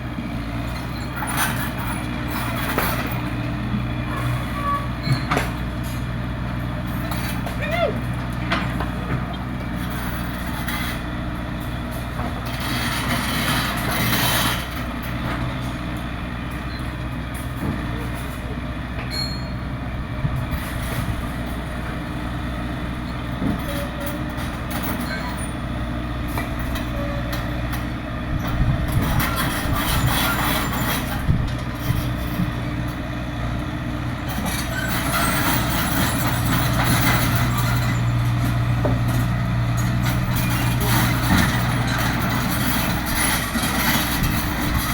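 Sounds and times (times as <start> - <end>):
excavator diesel engine running: 0.0 - 44.9
metal knocks and clanks: 34.3 - 44.9.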